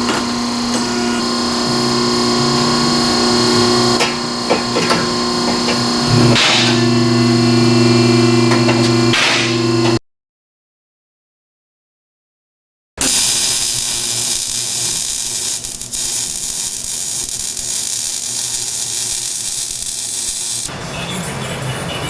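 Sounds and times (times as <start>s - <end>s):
welder hissing: 13.0s - 20.7s.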